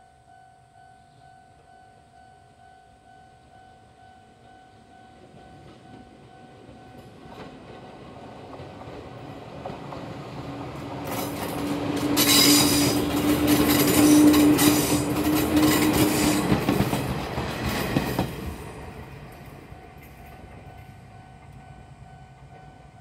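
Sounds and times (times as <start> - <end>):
train passing: 0.3 - 23.0
wheels clacking over rail joints: 5.6 - 21.7.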